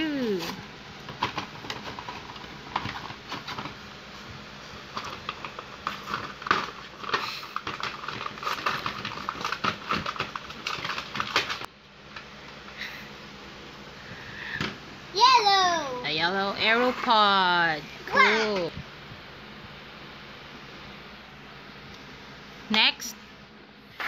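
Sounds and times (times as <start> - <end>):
plastic packaging crinkling: 4.8 - 11.7.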